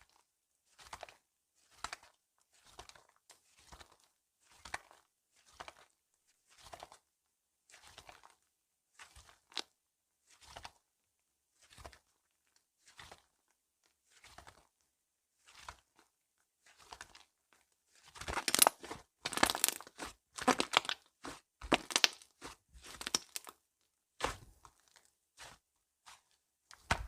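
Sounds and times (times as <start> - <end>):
slime squishing by hand: 18.0 - 23.6, 24.2 - 27.0.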